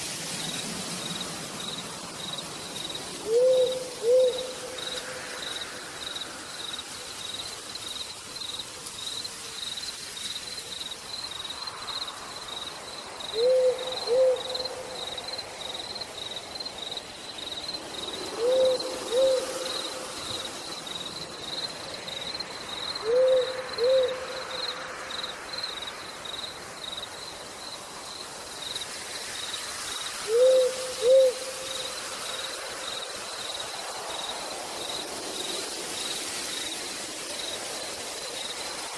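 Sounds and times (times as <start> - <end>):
faint rain hiss: 0.0 - 38.9
high insect chirping: 0.1 - 38.9
owl hooting: 3.2 - 5.0, 13.3 - 14.9, 18.4 - 20.0, 23.0 - 24.5, 30.2 - 31.8.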